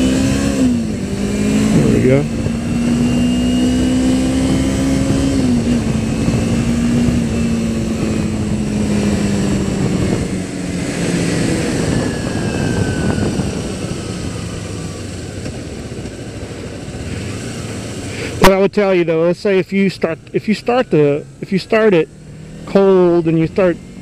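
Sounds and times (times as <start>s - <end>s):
motorcycle engine running: 0.0s - 18.5s
wind rush: 0.6s - 18.4s.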